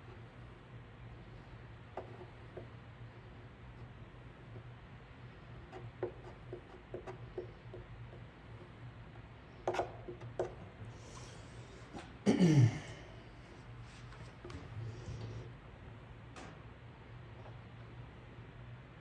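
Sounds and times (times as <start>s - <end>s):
steady low hum: 0.0s - 19.0s
person clearing throat: 12.2s - 13.2s.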